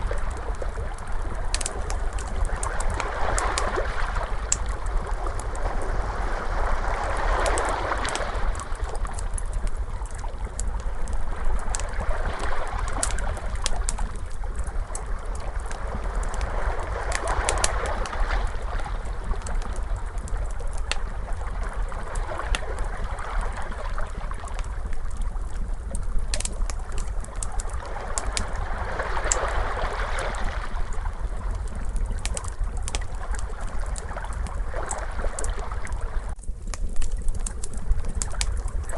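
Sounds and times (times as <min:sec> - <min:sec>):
wood fire crackling: 0:00.0 - 0:38.9
ocean waves washing in: 0:02.0 - 0:09.0, 0:27.6 - 0:31.5.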